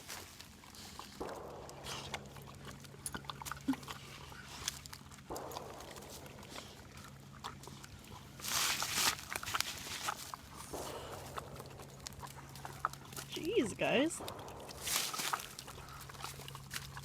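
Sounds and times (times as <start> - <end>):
footsteps crunching on trail: 4.4 - 17.0.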